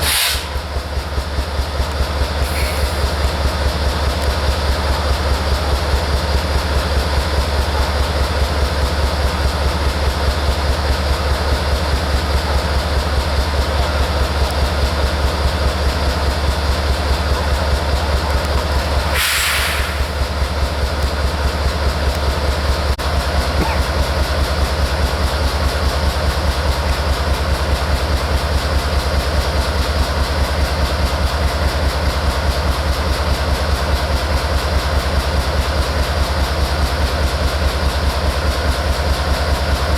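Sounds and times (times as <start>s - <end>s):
short hiss: 0.0s - 0.6s, 19.1s - 20.2s
train wheels rumbling on rail: 0.0s - 39.9s.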